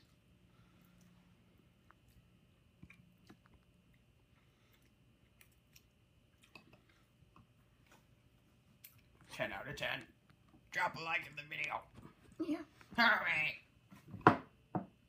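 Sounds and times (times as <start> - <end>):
chewing noodles: 0.0 - 9.3.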